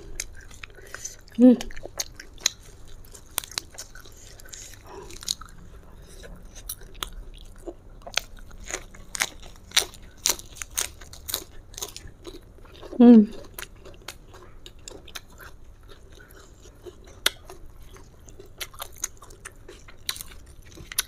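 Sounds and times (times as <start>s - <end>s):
chewing crunchy food: 0.0s - 21.0s.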